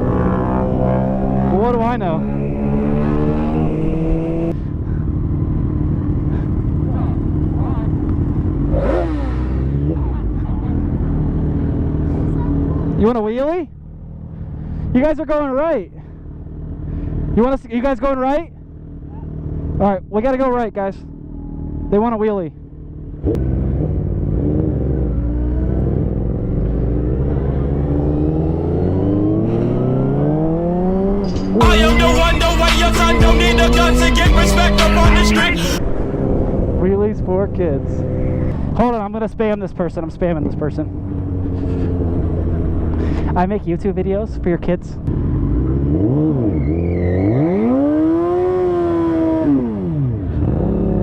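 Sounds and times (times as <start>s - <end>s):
motorcycle engine accelerating hard: 0.0s - 15.1s, 16.1s - 51.0s.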